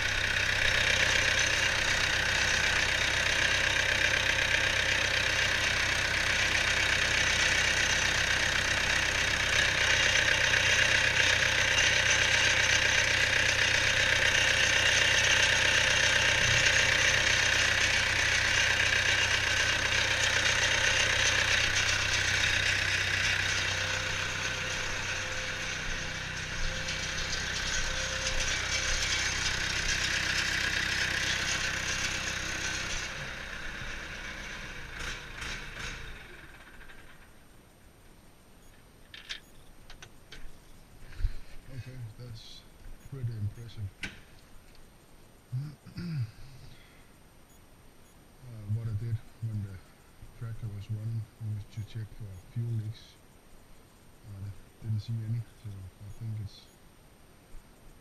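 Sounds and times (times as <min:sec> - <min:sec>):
tractor diesel engine idling: 0:00.0 - 0:37.5, 0:41.1 - 0:43.8.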